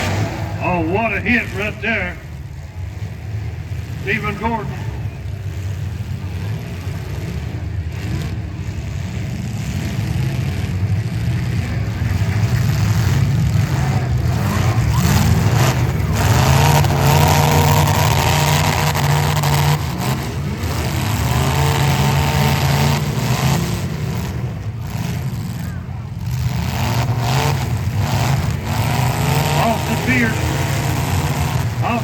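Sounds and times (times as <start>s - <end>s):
cars colliding bangs: 0.0s - 0.8s
car engines revving: 0.0s - 32.0s.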